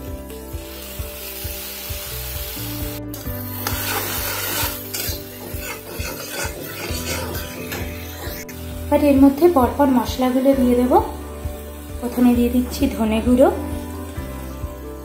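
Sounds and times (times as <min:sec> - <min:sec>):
paste sizzling in hot oil: 0:00.0 - 0:15.0
soft background music: 0:00.0 - 0:15.0
metal spatula scraping pan: 0:03.6 - 0:08.6.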